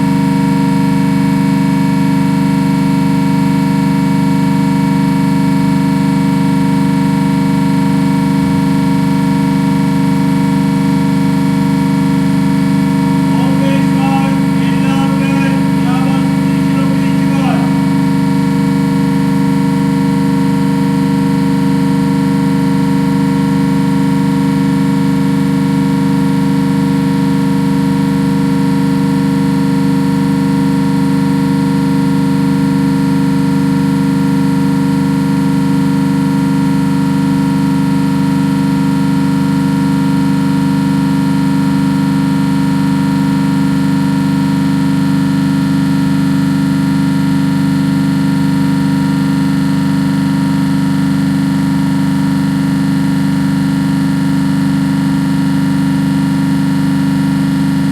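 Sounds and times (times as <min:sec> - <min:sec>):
compressor humming with steady tones: 0:00.1 - 0:25.7.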